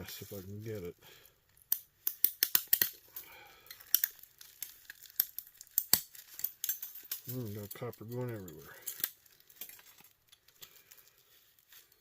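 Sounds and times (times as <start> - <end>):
hand tools prying plastic: 1.6 - 7.3.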